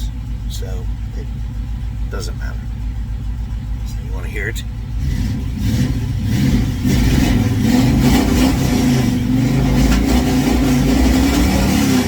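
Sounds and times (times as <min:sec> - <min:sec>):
man talking: 0:00.0 - 0:01.3, 0:02.1 - 0:02.6, 0:03.8 - 0:04.7
car engine revving: 0:00.0 - 0:12.0.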